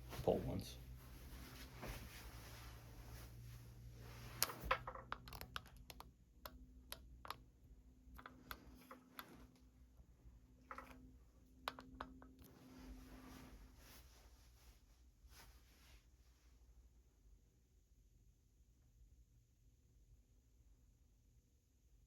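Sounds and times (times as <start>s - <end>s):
ceiling fan motor hum: 0.0s - 16.2s
light clicks and taps: 4.4s - 7.5s, 8.1s - 9.7s, 10.6s - 12.6s.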